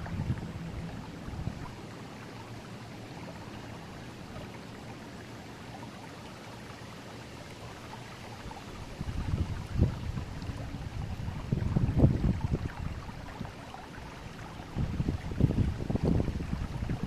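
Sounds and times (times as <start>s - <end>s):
low rumble: 0.0s - 1.8s
river water rushing: 0.0s - 11.7s
small water splashes: 0.0s - 17.0s.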